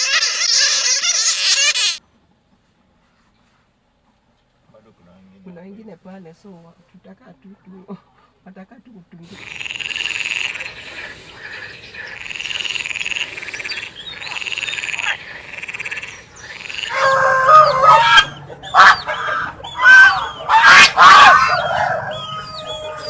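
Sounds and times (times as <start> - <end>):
frog trilling: 9.3 - 23.0
birds honking and squawking: 10.0 - 23.0.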